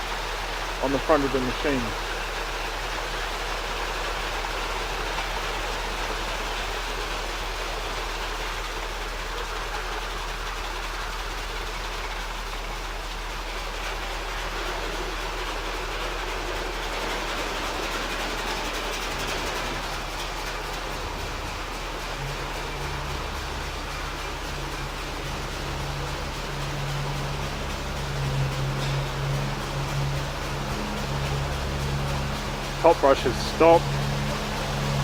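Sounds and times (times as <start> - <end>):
high-pressure water jets spraying: 0.0 - 35.0.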